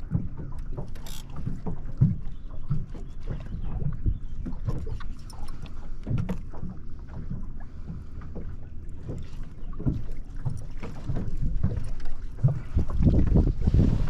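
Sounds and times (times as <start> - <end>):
knocks and thumps in boat: 0.0 - 14.0
water lapping at boat: 0.0 - 14.0
wind buffeting microphone: 11.0 - 14.0.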